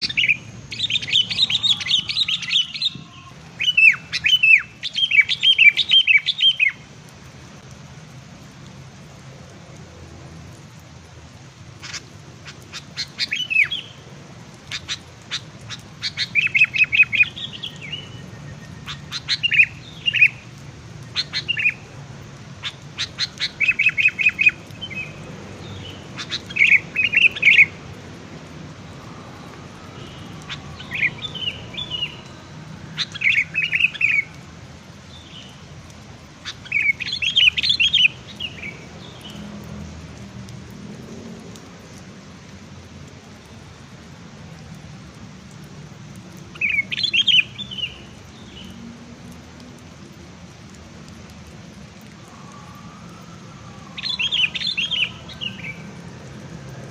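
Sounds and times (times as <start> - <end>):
songbirds chirping and trilling: 0.0 - 6.8, 11.7 - 27.8, 28.7 - 40.0, 46.4 - 48.8, 52.0 - 56.9.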